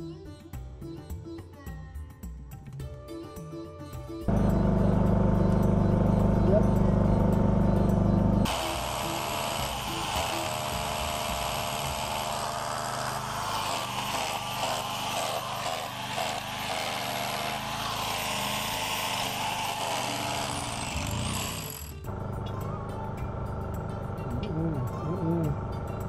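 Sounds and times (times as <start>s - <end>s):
angle grinder cutting metal: 8.2s - 22.2s.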